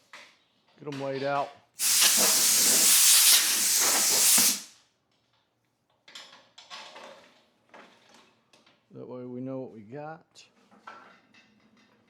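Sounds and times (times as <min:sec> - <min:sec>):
loud spray hiss: 0:01.8 - 0:04.7.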